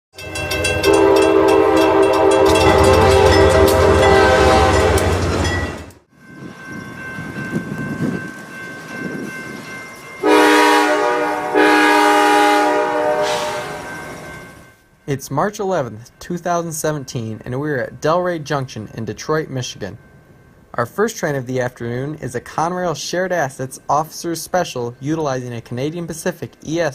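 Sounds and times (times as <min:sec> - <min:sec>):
locomotive engine rumble: 0:00.2 - 0:14.4
locomotive air horn: 0:00.8 - 0:05.3, 0:10.2 - 0:13.9.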